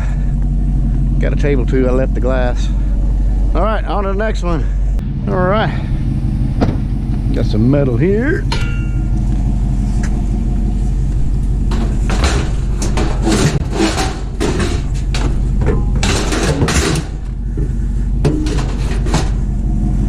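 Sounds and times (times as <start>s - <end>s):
vehicle engine idling: 0.0s - 20.0s
scrap metal knocks and rattles: 8.4s - 19.7s.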